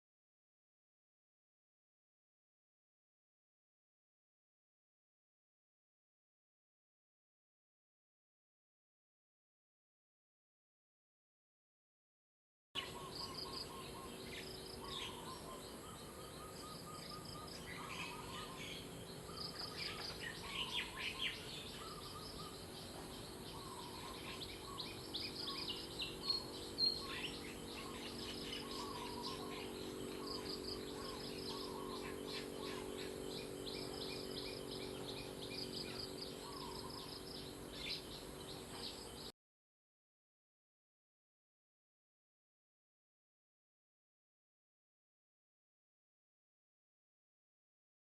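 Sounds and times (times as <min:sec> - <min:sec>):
small birds chirping: 0:12.8 - 0:39.3
steady low hum: 0:12.8 - 0:39.3.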